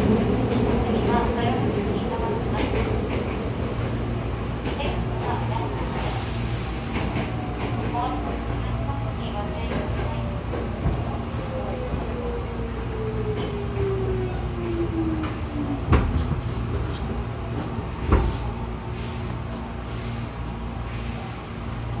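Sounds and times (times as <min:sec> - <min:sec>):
train running rumble: 0:00.0 - 0:22.0.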